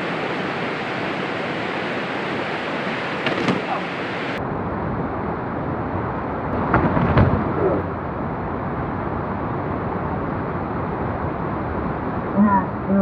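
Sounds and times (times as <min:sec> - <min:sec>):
rain: 0:00.0 - 0:13.0
rushing wind: 0:00.0 - 0:13.0
clatter of knocks: 0:06.6 - 0:07.5.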